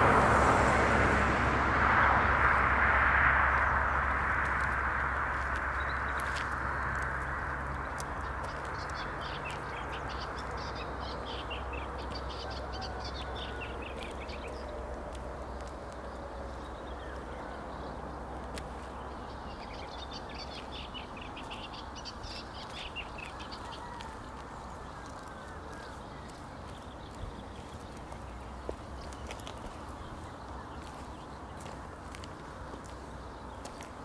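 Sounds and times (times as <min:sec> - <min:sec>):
steady rushing noise: 0:00.0 - 0:08.9
birds chirping: 0:03.5 - 0:34.0.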